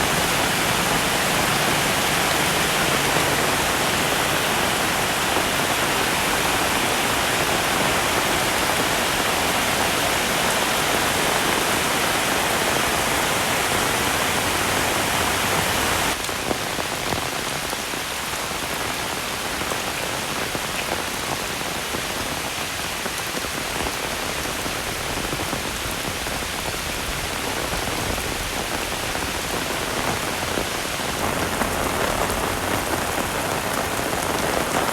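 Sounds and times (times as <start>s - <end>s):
heavy rain hissing: 0.0s - 34.9s.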